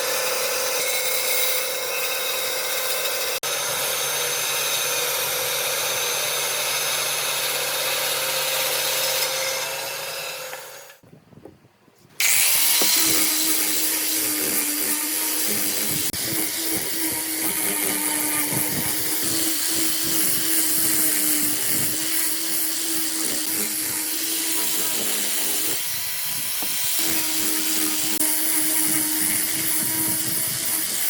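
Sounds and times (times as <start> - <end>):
hissy power tool on wood: 12.2 - 31.0
power tool starting: 12.2 - 31.0.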